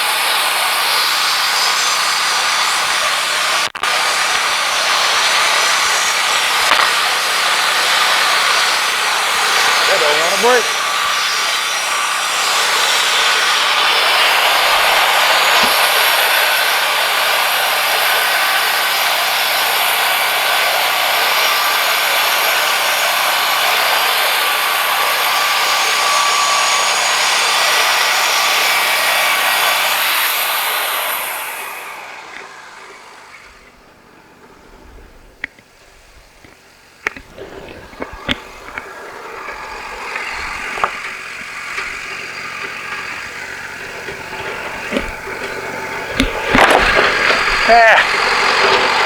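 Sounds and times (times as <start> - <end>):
band sawmill cutting log: 0.0 - 49.0.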